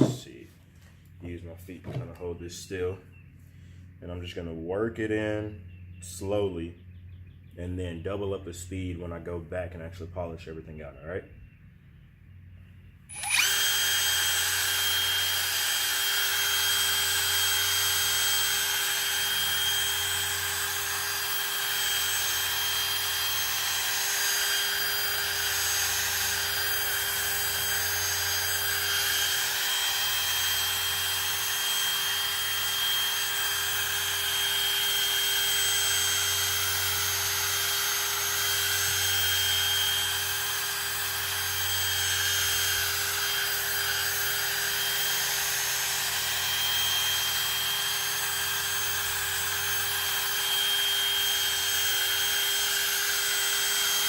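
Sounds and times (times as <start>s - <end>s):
drill motor whine: 13.1s - 54.0s.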